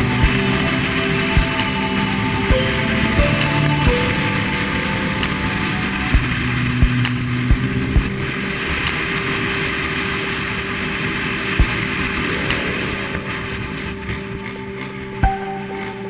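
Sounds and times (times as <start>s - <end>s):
low steady tones: 0.0s - 16.0s.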